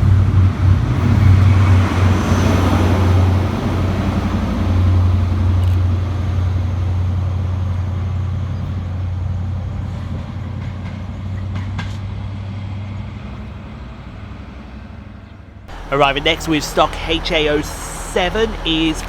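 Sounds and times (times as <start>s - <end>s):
diesel engine droning: 15.7s - 19.0s.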